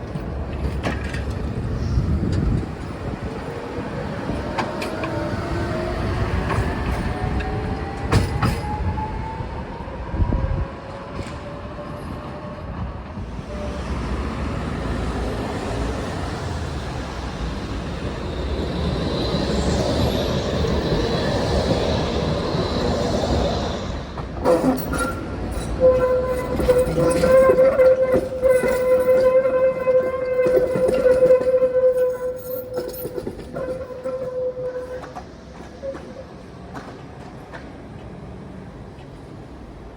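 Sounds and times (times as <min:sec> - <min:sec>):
tram wheels rumbling on rails: 0:00.0 - 0:39.9
tram motors whining: 0:00.1 - 0:39.9
wheels squealing: 0:13.5 - 0:36.3.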